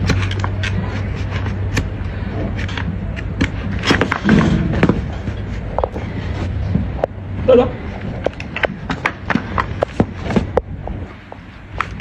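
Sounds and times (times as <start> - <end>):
trimming tool clicking and scraping hoof: 0.0 - 6.0.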